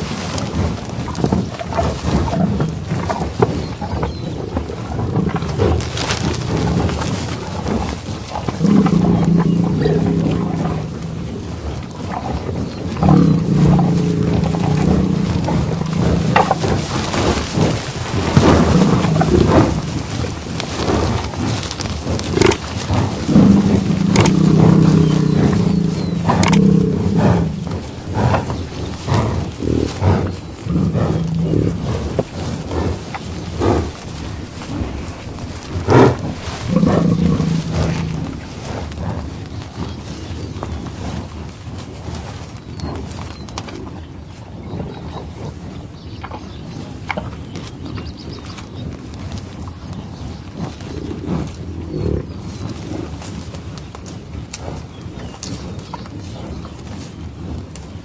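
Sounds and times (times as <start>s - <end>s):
buffalo bellowing: 8.5s - 20.1s, 23.2s - 38.9s
noisy background: 21.2s - 39.0s.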